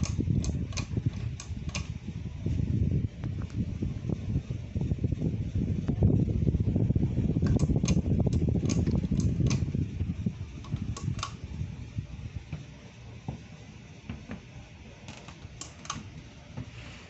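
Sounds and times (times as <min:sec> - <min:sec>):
sharp clicks: 0:00.0 - 0:02.0, 0:07.4 - 0:09.7, 0:10.6 - 0:11.4, 0:15.1 - 0:16.1
ceiling fan whooshing: 0:00.0 - 0:17.0.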